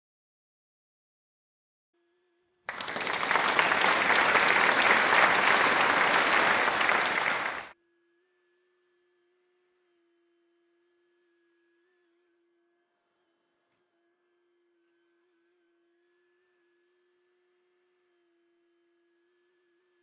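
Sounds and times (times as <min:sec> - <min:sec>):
burst of applause: 0:02.7 - 0:07.8.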